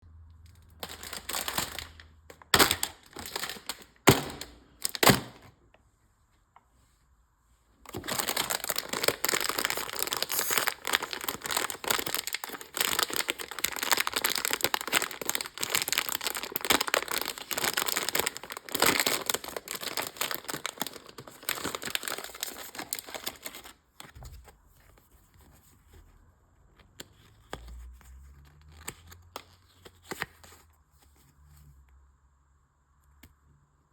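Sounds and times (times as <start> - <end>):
packaging crinkling and tearing: 0.5 - 5.5, 7.9 - 24.2.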